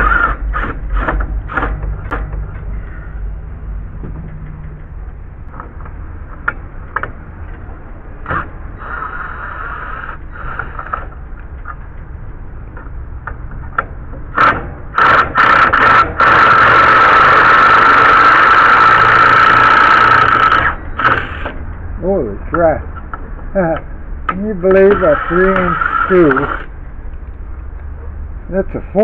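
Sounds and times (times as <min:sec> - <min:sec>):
power drill backing out screw: 0:14.4 - 0:21.5.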